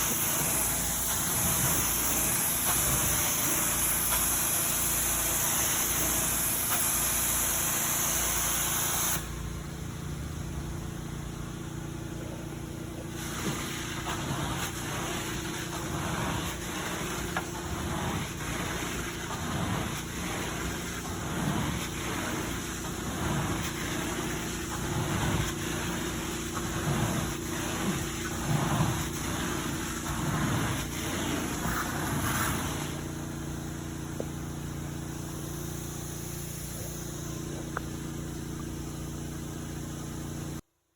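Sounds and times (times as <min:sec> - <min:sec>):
tool strokes across carpet: 0:00.0 - 0:09.2, 0:13.1 - 0:33.1
loud hiss: 0:00.0 - 0:09.7, 0:11.8 - 0:40.0
carpet cleaning machine humming: 0:00.0 - 0:40.6.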